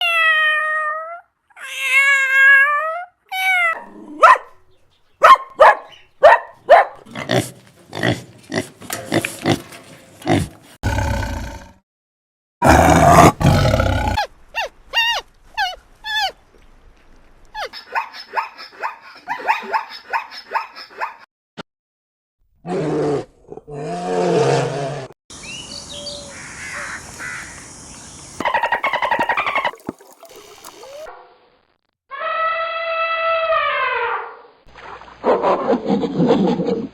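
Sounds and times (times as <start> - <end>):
animal calls: 28.4 - 29.8.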